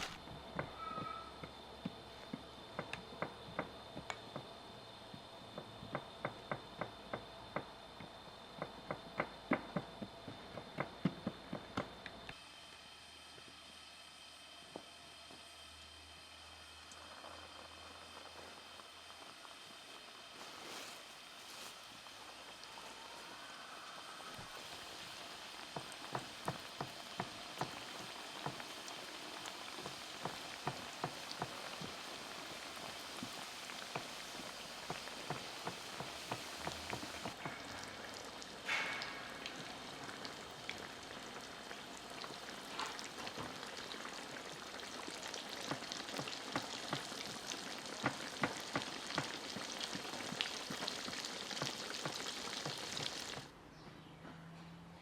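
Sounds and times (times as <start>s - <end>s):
buns sizzling in hot oil: 12.3s - 53.5s.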